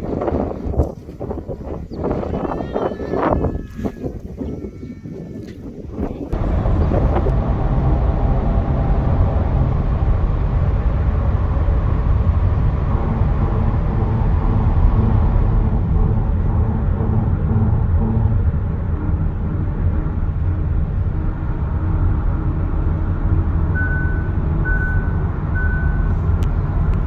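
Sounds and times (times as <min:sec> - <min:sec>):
engine rumbling: 0:06.1 - 0:27.0.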